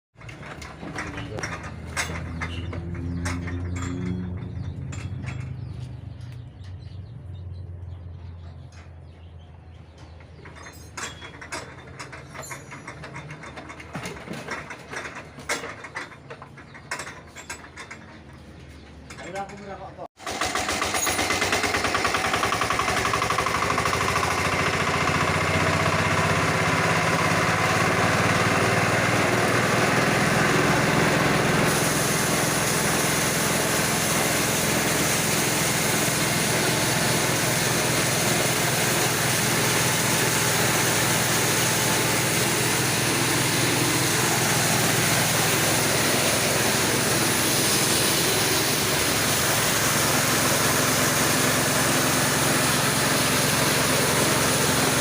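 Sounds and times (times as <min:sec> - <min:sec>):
engine-driven grinding machine running: 0:00.1 - 0:55.0.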